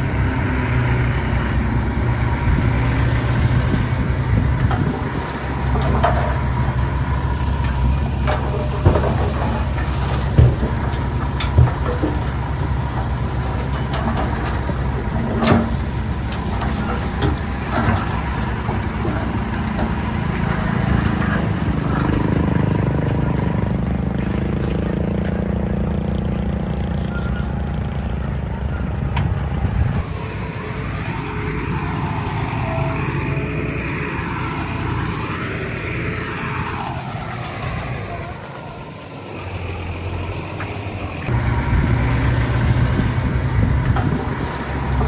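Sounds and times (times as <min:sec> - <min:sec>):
diesel engines working: 0:00.0 - 0:45.0
clanks and knocks: 0:02.0 - 0:30.1, 0:41.3 - 0:45.0.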